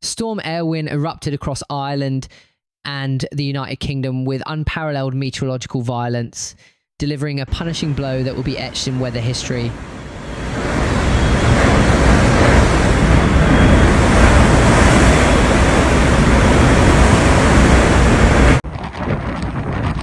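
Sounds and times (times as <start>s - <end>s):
stormy sea surf: 7.6s - 20.0s
wind blowing on microphone: 7.8s - 20.0s.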